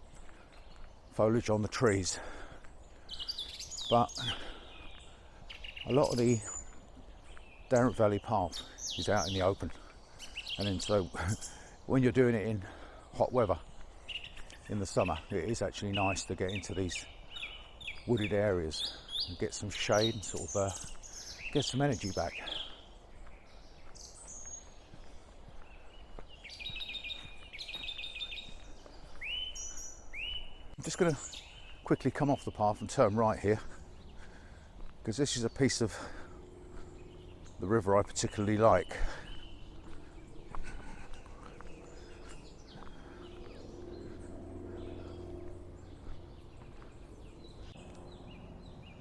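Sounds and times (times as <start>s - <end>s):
footsteps on woodland path: 0.0s - 49.0s
small birds chirping: 0.0s - 49.0s
low steady outdoor rush: 28.5s - 49.0s
low background rumble: 36.0s - 37.7s, 39.1s - 49.0s.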